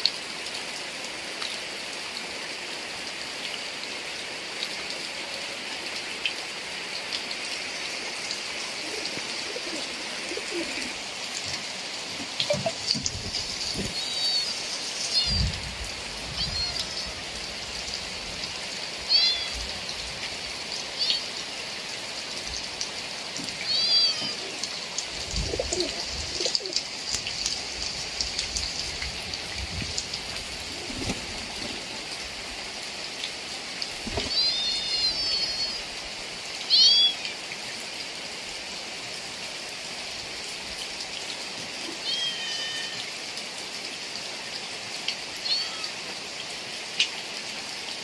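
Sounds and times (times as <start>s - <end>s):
raindrops ticking close by: 0.0s - 42.2s, 43.0s - 48.0s
heavy rain falling: 0.0s - 48.0s
faint bird call: 16.4s - 17.2s, 34.2s - 35.8s, 36.7s - 37.2s.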